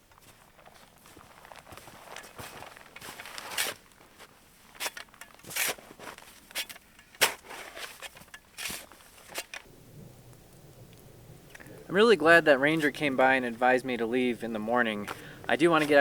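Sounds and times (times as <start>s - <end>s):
footsteps crunching in snow: 0.0s - 9.5s, 14.4s - 16.0s.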